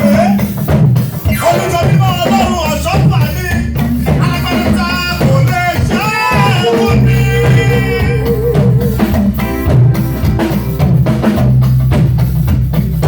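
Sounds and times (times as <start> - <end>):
bass line: 0.0 - 13.0
drum kit beat: 0.0 - 13.0
person singing praise song: 1.3 - 9.2.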